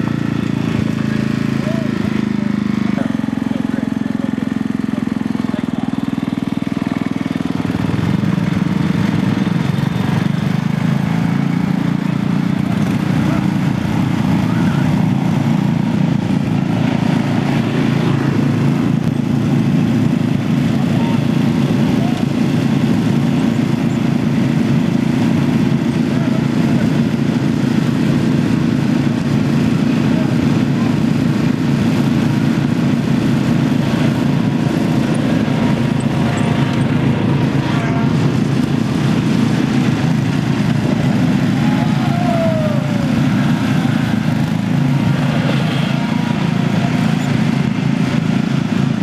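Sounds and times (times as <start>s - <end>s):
riding lawn mower engine: 0.0s - 49.0s.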